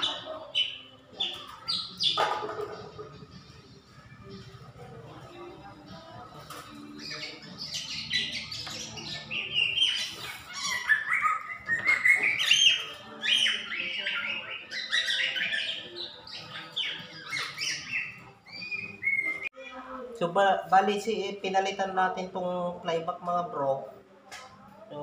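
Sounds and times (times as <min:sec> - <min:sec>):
bird chirping and chattering: 0:00.0 - 0:02.2, 0:06.9 - 0:19.5.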